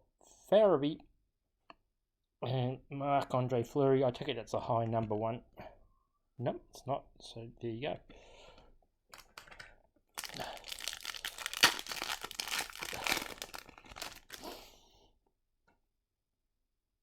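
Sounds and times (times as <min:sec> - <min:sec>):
card pack wrapper crinkling and tearing: 0:10.2 - 0:14.6.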